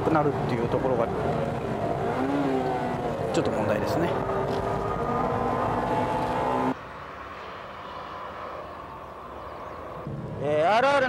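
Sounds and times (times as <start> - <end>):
car engine at high revs: 0.0 - 6.8
distant car driving away: 0.0 - 6.8.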